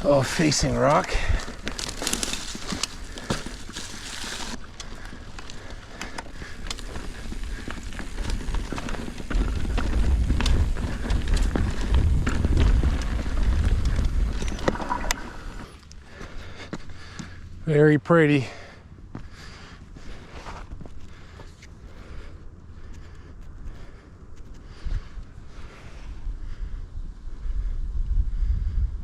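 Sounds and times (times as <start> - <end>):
bike tyres crunching on rocks: 0.0 - 16.3.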